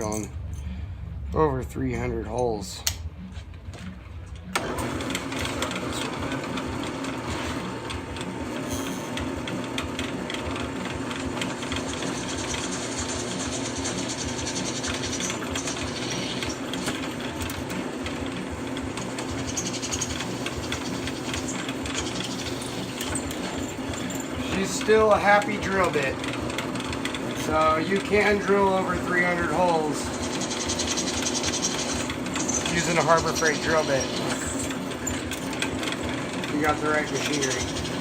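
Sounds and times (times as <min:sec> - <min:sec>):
low motor hum: 0:00.0 - 0:38.0
drill bit cutting metal: 0:11.4 - 0:17.3, 0:19.1 - 0:26.2, 0:27.2 - 0:38.0.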